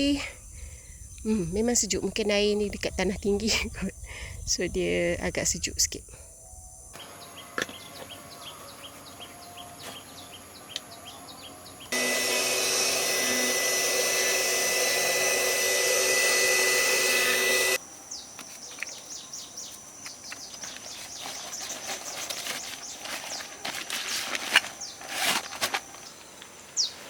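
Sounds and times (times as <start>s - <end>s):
small birds chirping: 7.0s - 12.0s, 18.1s - 27.0s.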